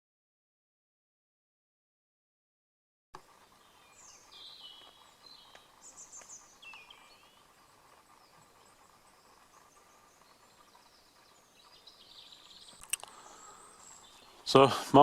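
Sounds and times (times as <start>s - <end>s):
birds chirping and twittering: 3.2s - 15.0s
faint steady hum: 3.2s - 15.0s.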